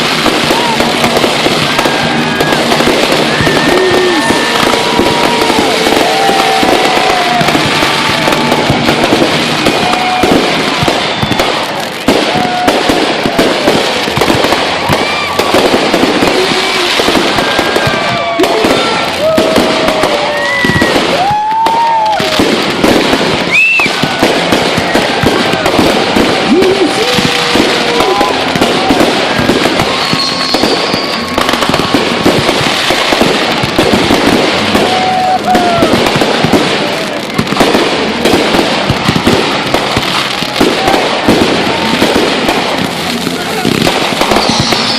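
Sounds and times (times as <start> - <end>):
fireworks bangs and crackling: 0.0 - 44.9
whistling fireworks: 0.0 - 44.9.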